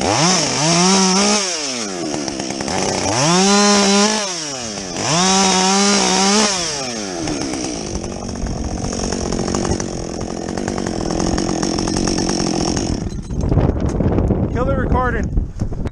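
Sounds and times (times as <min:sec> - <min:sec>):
chainsaw revving and idling: 0:00.0 - 0:13.5.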